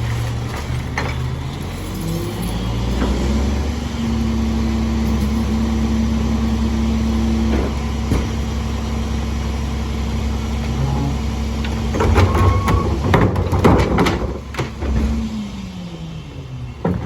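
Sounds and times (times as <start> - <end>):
diesel engine idling: 0.0 - 13.1
knocks and clatter: 7.4 - 8.6, 11.6 - 15.4.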